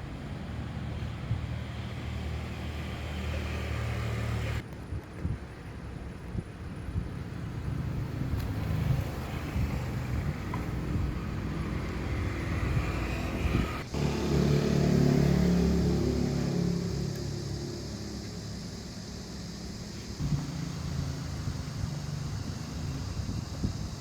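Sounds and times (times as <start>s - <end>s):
small motor running: 20.2s - 24.0s.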